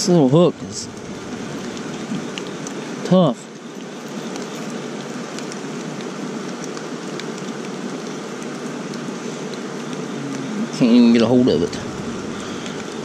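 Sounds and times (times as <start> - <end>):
water hissing: 0.0 - 5.2, 7.5 - 13.0
drops ticking: 0.0 - 13.0.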